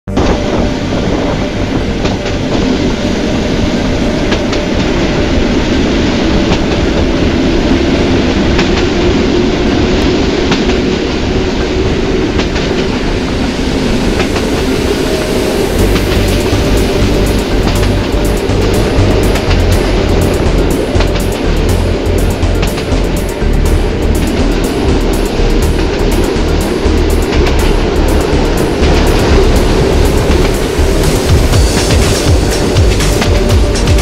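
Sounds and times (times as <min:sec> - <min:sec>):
train rumbling on track: 0:00.0 - 0:34.0
wheels clicking over rail joints: 0:15.8 - 0:34.0.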